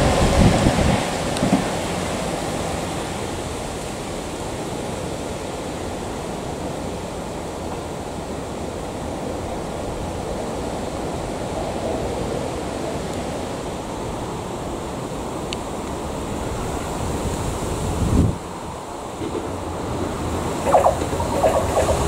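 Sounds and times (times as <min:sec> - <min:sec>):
diesel train running: 0:18.6 - 0:22.0.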